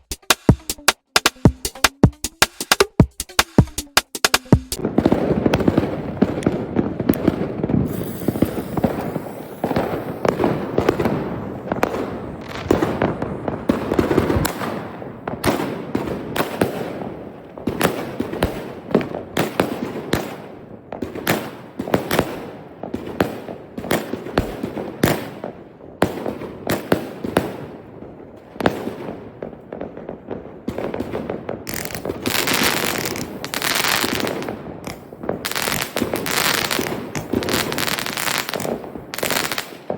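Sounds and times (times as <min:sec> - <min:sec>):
fireworks bangs and pops: 0:00.0 - 0:39.9
hissing crackle: 0:07.6 - 0:14.5, 0:31.7 - 0:39.7.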